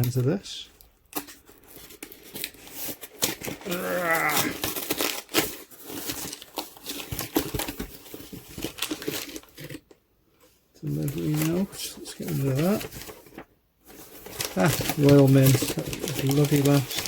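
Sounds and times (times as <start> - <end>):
packaging tearing and crinkling: 1.1 - 9.9, 10.9 - 17.0
person's wavering vocal sound: 3.6 - 4.6.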